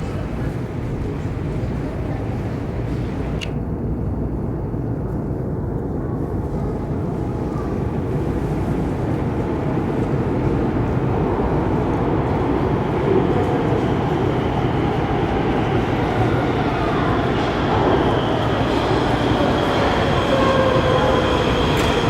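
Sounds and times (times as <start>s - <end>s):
train wheels rumbling: 6.8s - 22.0s.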